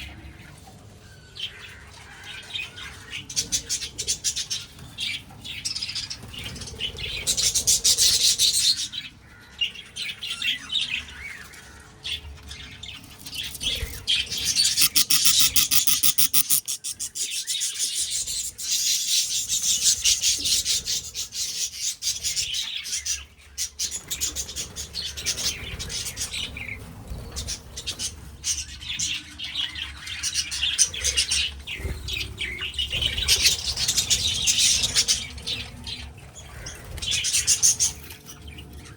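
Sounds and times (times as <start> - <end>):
budgies chirping and chattering: 14.2 - 23.2.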